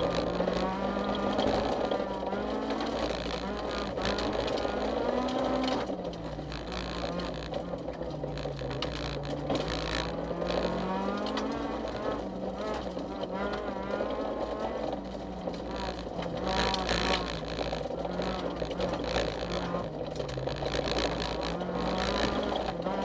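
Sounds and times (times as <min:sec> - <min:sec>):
car engine under hard driving: 0:00.0 - 0:23.0
tyre and road noise: 0:00.0 - 0:23.0.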